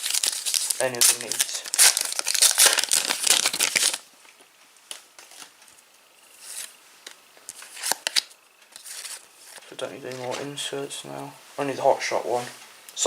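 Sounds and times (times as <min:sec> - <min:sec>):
foil wrapper crinkling: 0:00.0 - 0:04.4, 0:06.4 - 0:10.5.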